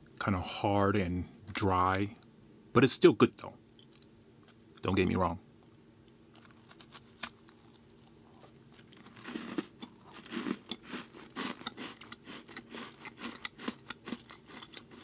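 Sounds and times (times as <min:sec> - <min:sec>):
chewing crunchy cookie: 0:03.7 - 0:05.0, 0:05.7 - 0:15.0.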